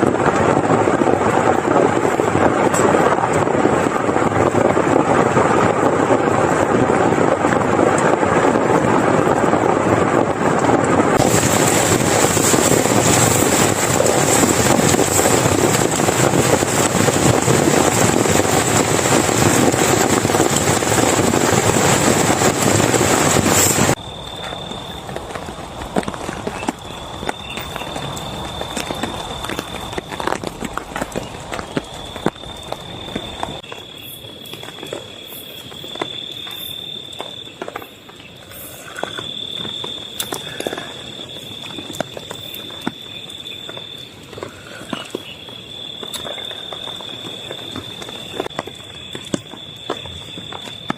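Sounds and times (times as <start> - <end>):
heavy rain falling: 0.0 - 50.9
insects trilling: 23.9 - 50.9.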